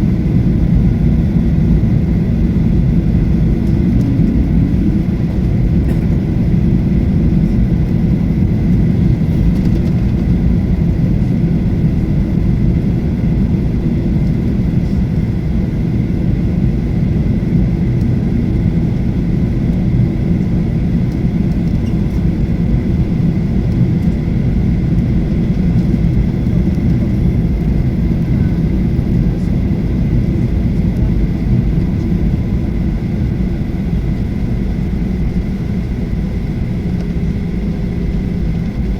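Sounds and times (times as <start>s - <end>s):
aircraft cabin engine rumble: 0.0s - 38.9s
faint steady whine: 0.0s - 38.9s.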